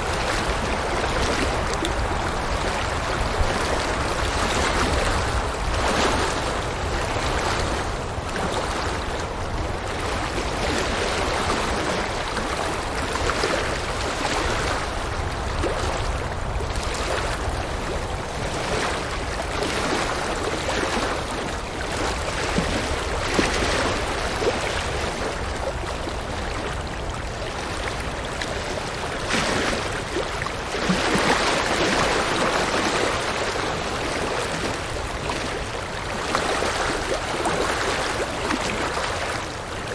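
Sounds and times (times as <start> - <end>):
river water flowing and splashing: 0.0 - 39.9.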